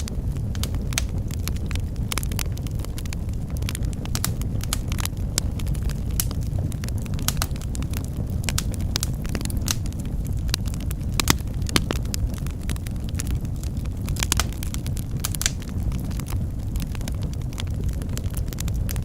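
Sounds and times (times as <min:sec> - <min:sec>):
fire popping and snapping: 0:00.0 - 0:19.0
low rumble of flames: 0:00.0 - 0:19.0.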